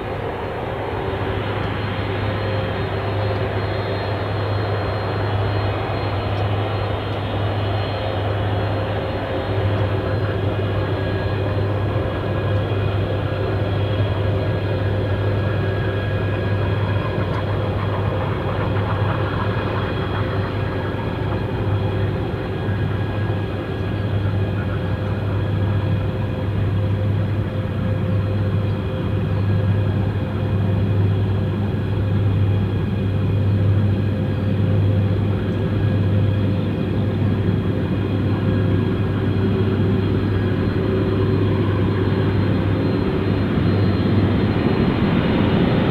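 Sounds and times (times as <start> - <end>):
jet engines running: 0.0 - 45.9.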